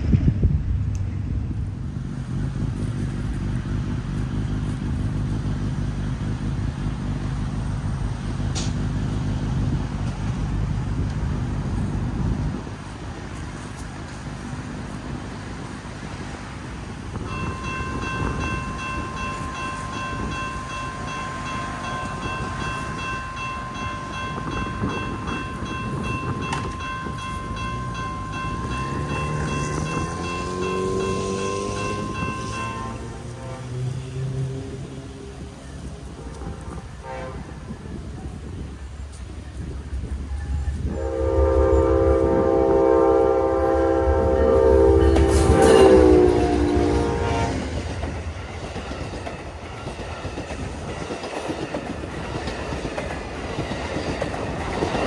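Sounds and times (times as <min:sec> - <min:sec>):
diesel locomotive running past: 0:00.0 - 0:55.0
high ringing tones: 0:17.2 - 0:33.4.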